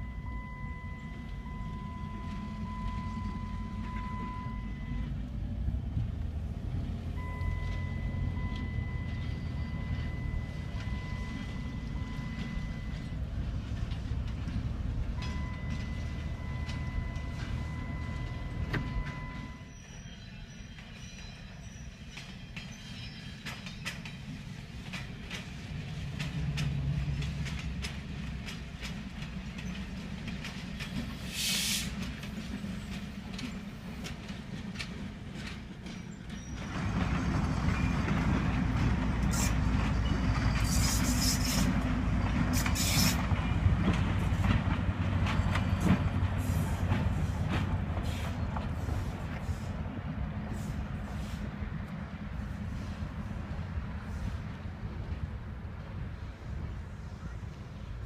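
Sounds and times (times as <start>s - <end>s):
train rumbling on rails: 0.0s - 58.0s
wheels clicking over rail joints: 5.2s - 19.4s, 22.0s - 52.7s
short high hisses: 31.3s - 32.0s.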